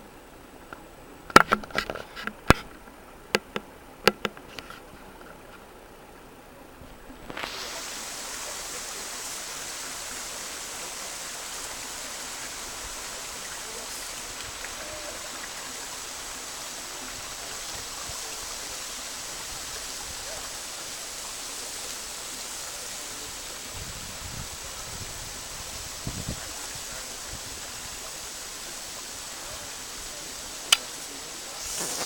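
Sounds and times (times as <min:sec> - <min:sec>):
waterfall rushing: 0:07.2 - 0:32.0.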